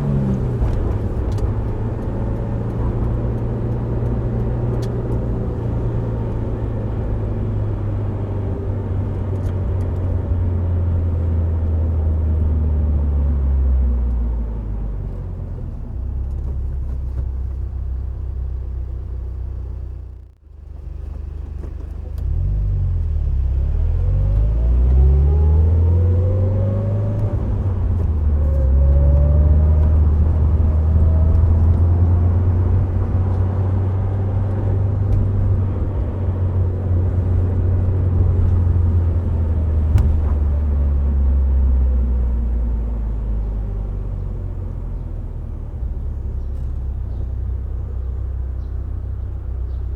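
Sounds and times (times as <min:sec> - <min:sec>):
tyre and road rumble: 0:13.9 - 0:49.9
car engine revving: 0:22.2 - 0:43.2.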